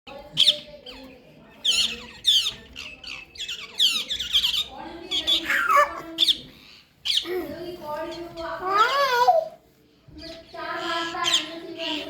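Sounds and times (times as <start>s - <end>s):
parrots squawking: 0.4s - 7.4s.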